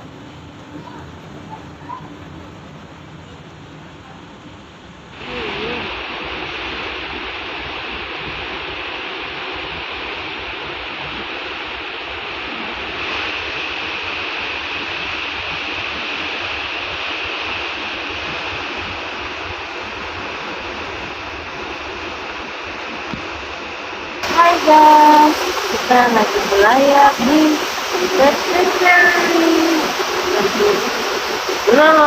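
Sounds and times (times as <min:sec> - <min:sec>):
sea water rushing: 0:05.1 - 0:32.0
wind rushing: 0:12.4 - 0:32.0.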